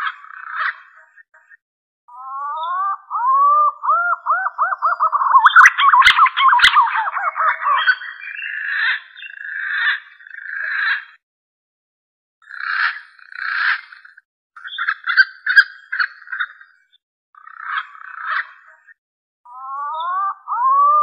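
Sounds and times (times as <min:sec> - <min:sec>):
pigeon whistled song: 0:02.2 - 0:08.5, 0:19.6 - 0:21.0.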